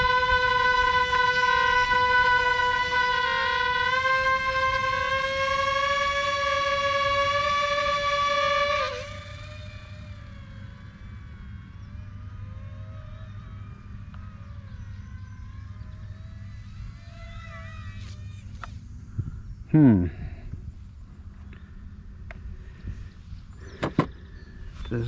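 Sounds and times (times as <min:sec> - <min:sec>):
model plane motor whine: 0:00.0 - 0:19.6.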